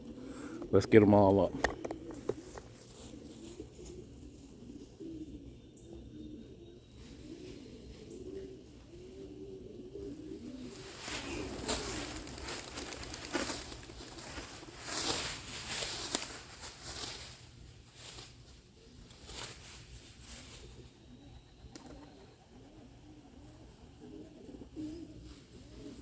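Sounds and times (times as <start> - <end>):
pigeons cooing: 0.0 - 26.0
rustling whooshing bursts: 10.7 - 17.3.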